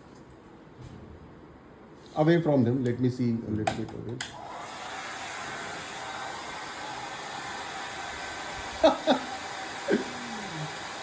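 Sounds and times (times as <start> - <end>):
hair dryer switch click: 3.7 - 4.4
hair dryer blowing: 4.3 - 11.0.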